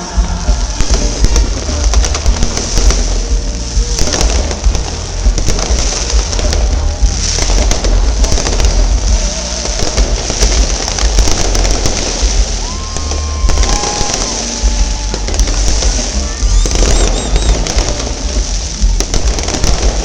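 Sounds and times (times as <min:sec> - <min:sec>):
deep rumble: 0:00.0 - 0:20.0
fireworks bangs: 0:00.0 - 0:20.0
music playing: 0:00.0 - 0:20.0.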